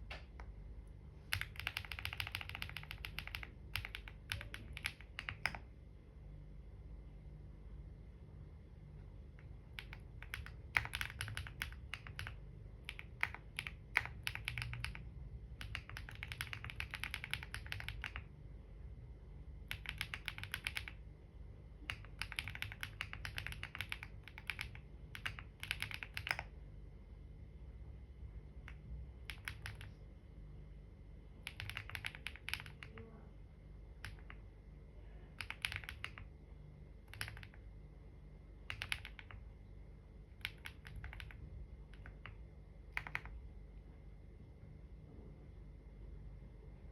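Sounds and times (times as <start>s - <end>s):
computer keyboard typing: 1.3s - 5.8s, 9.2s - 18.4s, 19.6s - 21.1s, 21.8s - 26.6s, 28.6s - 30.0s, 31.4s - 33.2s, 33.9s - 34.5s, 35.3s - 36.4s, 37.0s - 37.7s, 38.6s - 39.5s, 40.3s - 43.5s.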